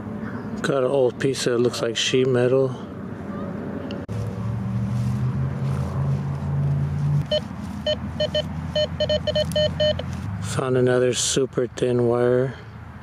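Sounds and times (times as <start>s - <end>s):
metal detector beeps: 7.2s - 10.1s.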